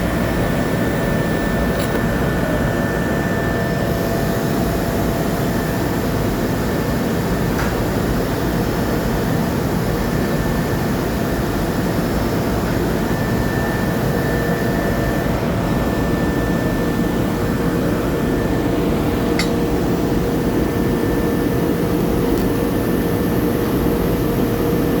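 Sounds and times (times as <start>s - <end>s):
welding equipment hiss and hum: 0.0s - 2.2s, 17.1s - 24.5s
sharp click: 0.2s - 2.0s, 19.4s - 19.6s.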